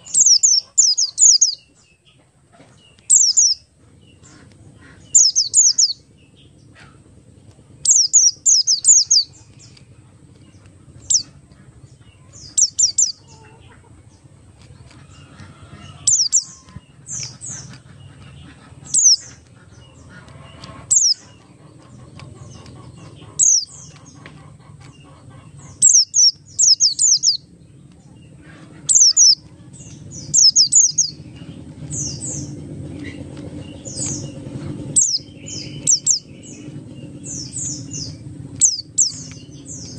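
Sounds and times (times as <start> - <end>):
white-eye bird singing: 0.0 - 39.9.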